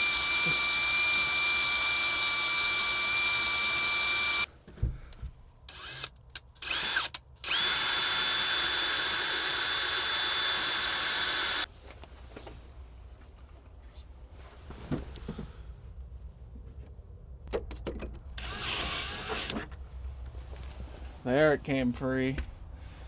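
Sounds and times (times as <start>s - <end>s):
power drill drilling: 0.0s - 4.5s, 5.7s - 11.7s, 18.4s - 19.7s.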